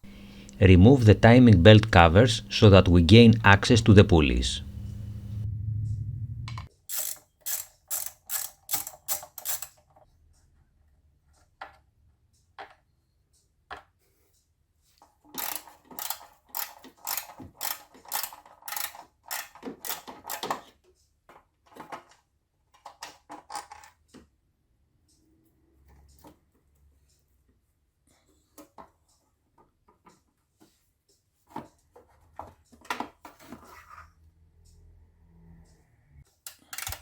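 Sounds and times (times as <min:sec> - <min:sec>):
ratchet wrench clicking: 0:06.9 - 0:09.8, 0:15.4 - 0:20.5, 0:36.5 - 0:37.0.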